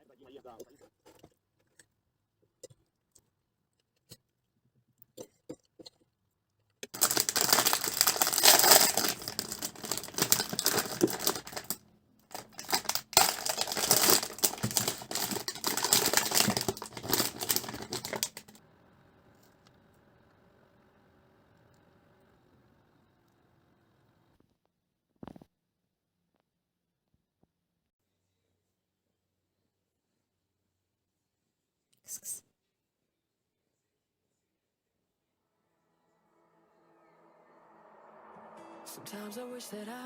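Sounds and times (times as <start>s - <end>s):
packaging crinkling: 6.9s - 18.6s
faint steady hum: 7.0s - 24.4s.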